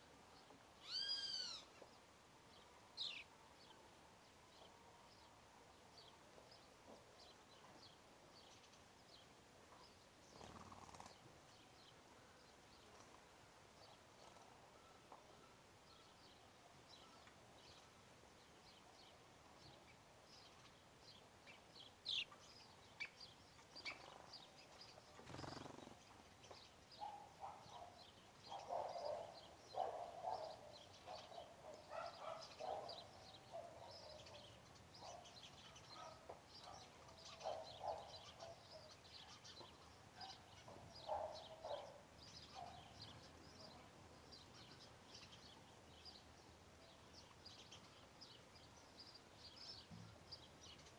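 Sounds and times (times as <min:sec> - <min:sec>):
high bird chirps: 0:00.8 - 0:01.7
lower louder bird call: 0:00.8 - 0:01.7.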